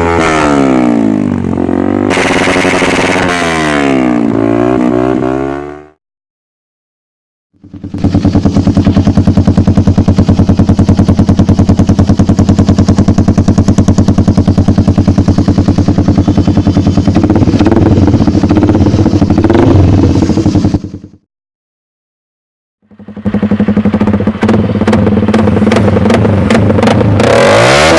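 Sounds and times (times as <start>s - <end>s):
motorcycle engine idling: 7.6s - 21.2s, 22.8s - 27.6s.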